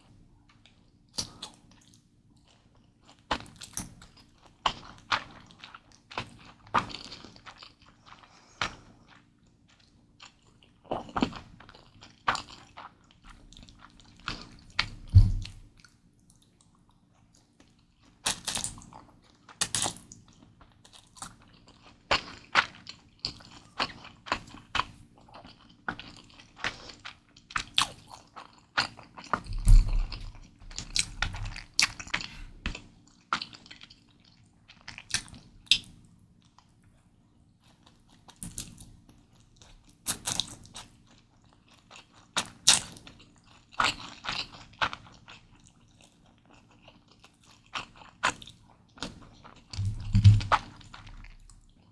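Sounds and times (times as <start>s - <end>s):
wet chewing and mouth clicks: 0.5s - 37.0s, 37.6s - 51.9s
heavy low thumps: 49.8s - 50.6s.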